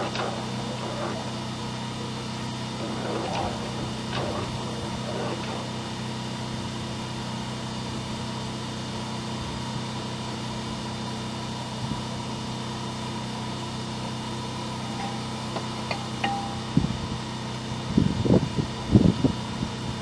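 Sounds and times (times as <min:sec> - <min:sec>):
low machine hum with hiss: 0:09.4 - 0:20.0.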